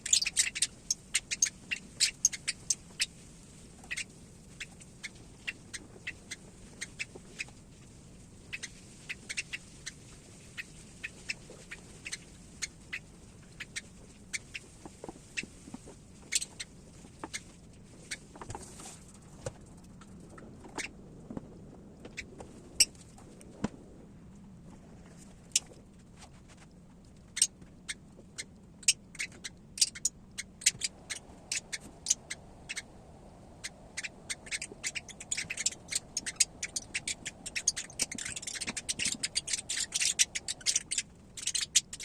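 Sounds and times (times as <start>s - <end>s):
parrot chick high sharp calls: 28.4s - 42.0s.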